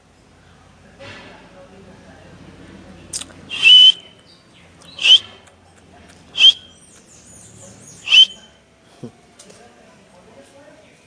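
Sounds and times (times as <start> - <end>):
bird squawking harshly: 3.5 - 4.0, 4.9 - 5.4, 6.4 - 6.7, 8.0 - 8.4.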